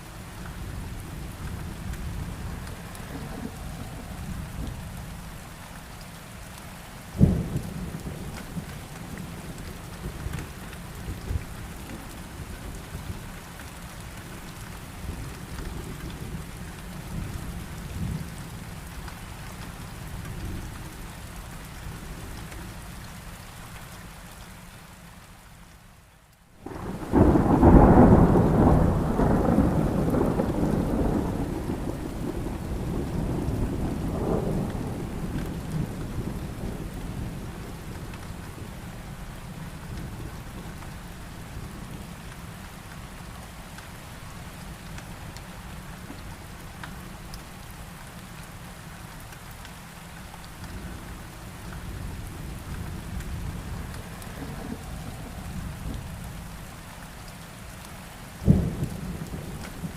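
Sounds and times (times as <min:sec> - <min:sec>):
heavy rain: 0:00.0 - 0:59.9
distant thunder rumble: 0:01.6 - 0:05.4, 0:26.6 - 0:42.1, 0:50.8 - 0:56.7, 0:58.4 - 0:59.9
loud thunderclap: 0:26.7 - 0:36.6, 0:58.4 - 0:59.9.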